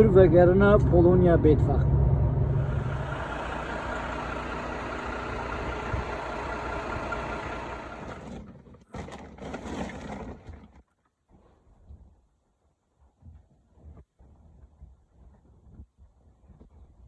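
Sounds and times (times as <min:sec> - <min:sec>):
truck engine and road noise: 0:00.0 - 0:09.3.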